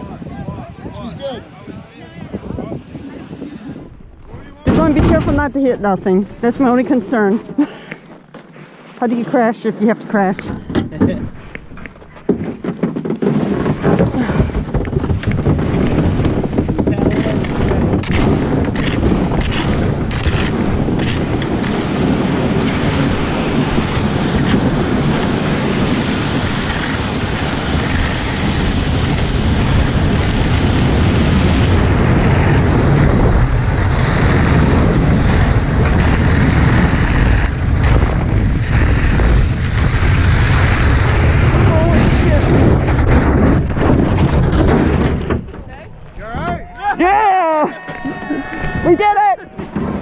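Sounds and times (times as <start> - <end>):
wind buffeting microphone: 0.0 - 7.6, 13.2 - 46.6.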